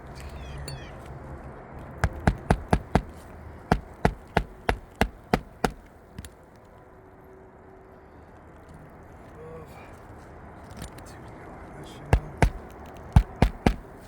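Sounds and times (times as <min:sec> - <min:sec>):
hammer driving nails: 0:02.0 - 0:06.3, 0:12.2 - 0:14.0.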